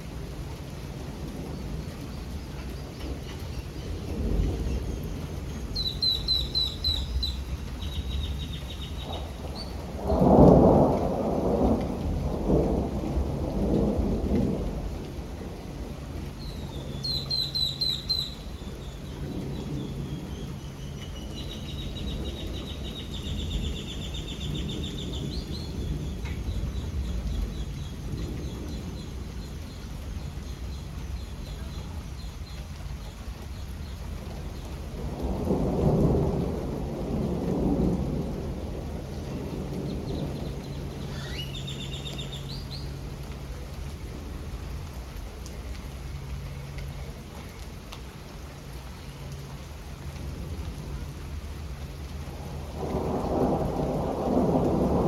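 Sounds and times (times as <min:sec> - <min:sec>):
low rumble of thunder: 0:00.0 - 0:55.0
steady rain: 0:00.0 - 0:55.0
songbird singing: 0:01.6 - 0:10.0, 0:16.3 - 0:35.0, 0:38.9 - 0:43.7
loud thunder peal: 0:08.9 - 0:16.1, 0:34.8 - 0:41.7, 0:52.3 - 0:55.0.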